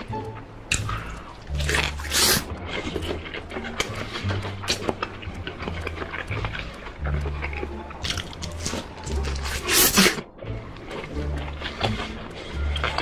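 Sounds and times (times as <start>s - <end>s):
background music with bass line: 0.0s - 13.0s
crackly chewing: 0.0s - 13.0s
loud crunching bite: 0.7s - 10.3s.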